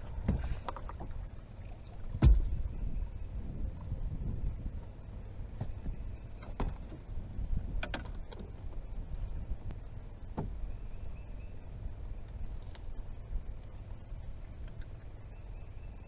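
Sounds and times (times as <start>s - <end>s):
gear knocking in a boat: 0.0s - 11.0s
low steady rumble: 0.0s - 16.0s.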